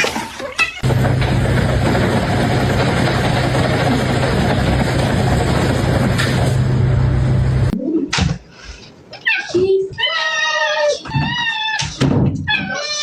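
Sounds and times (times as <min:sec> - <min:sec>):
motor running: 0:00.8 - 0:07.7.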